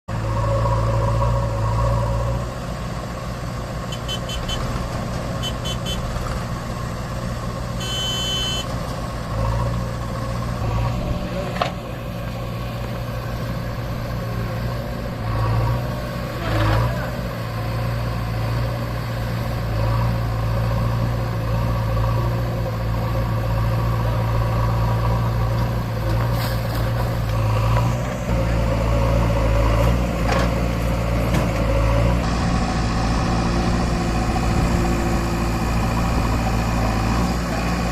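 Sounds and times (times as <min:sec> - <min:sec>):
tractor diesel engine under load: 0:00.1 - 0:37.9
long high tone: 0:07.8 - 0:08.7
short high beeps: 0:07.8 - 0:08.7.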